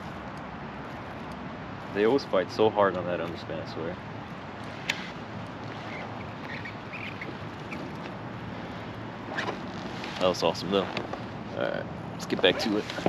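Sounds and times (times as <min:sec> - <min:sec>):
faint bird calls: 0:04.9 - 0:08.1.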